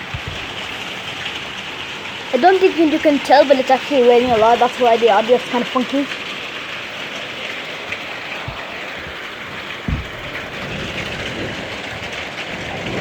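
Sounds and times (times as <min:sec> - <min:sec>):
heavy rain falling: 0:00.0 - 0:13.0
dull low thump: 0:09.8 - 0:11.6.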